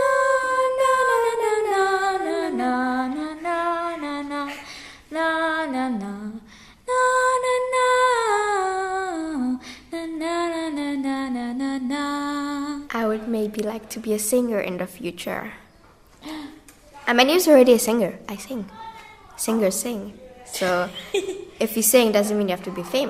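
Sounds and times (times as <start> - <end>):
girl singing unaccompanied: 0.0 - 15.7.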